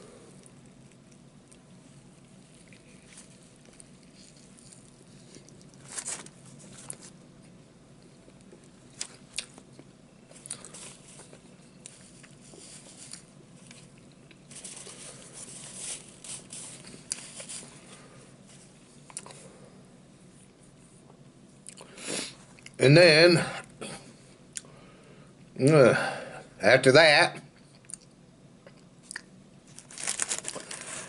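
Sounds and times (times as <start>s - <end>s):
chewing a sandwich: 0.0s - 22.8s, 27.5s - 31.0s
paper napkin crinkling: 2.0s - 7.2s, 10.3s - 18.8s, 29.7s - 31.0s
crackling mouth sounds: 27.8s - 29.4s.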